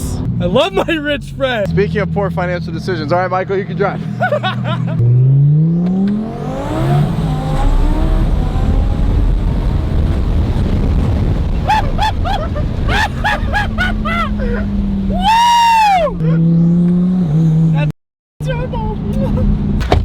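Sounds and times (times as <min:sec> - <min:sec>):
road noise at speed: 0:00.0 - 0:20.0
car engine accelerating hard: 0:01.4 - 0:17.9
person laughing: 0:04.0 - 0:05.0, 0:11.5 - 0:14.8.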